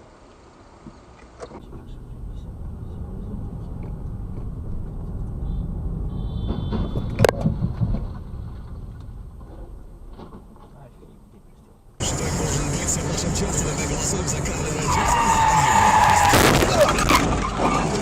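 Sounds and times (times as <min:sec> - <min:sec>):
car road rumble: 0:00.0 - 0:18.0
high-pitched tyre squeal: 0:14.4 - 0:18.0
collision bang: 0:16.2 - 0:17.2.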